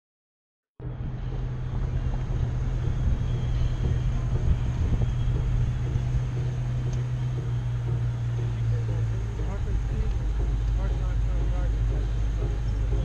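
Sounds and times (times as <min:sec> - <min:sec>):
car engine humming: 0:00.8 - 0:13.0
road and wind noise: 0:00.8 - 0:13.0.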